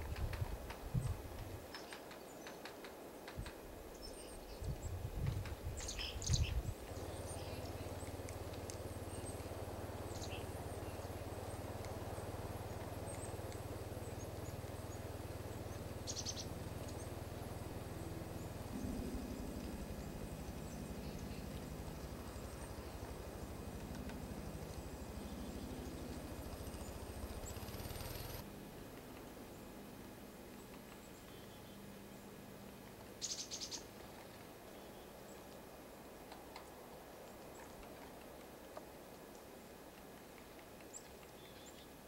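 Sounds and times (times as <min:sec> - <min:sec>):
small birds chirping: 0:00.2 - 0:28.5, 0:30.5 - 0:32.4, 0:33.1 - 0:38.4, 0:39.2 - 0:42.0
low hum: 0:04.7 - 0:33.0.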